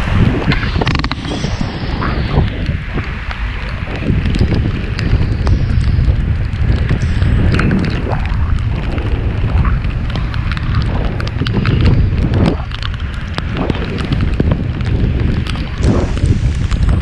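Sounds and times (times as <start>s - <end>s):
whooshes: 0.0s - 17.0s
wind buffeting microphone: 0.0s - 17.0s
bicycle clicks and rattles: 4.2s - 17.0s.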